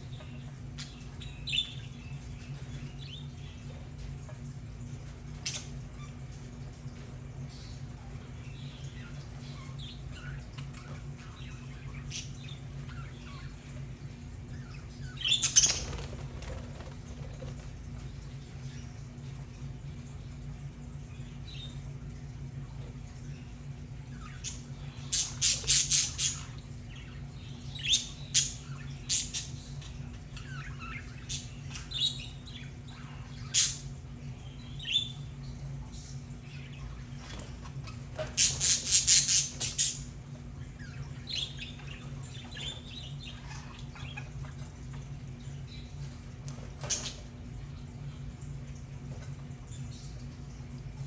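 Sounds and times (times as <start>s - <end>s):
budgerigars chirping and squawking: 0.0s - 17.7s, 24.2s - 44.8s.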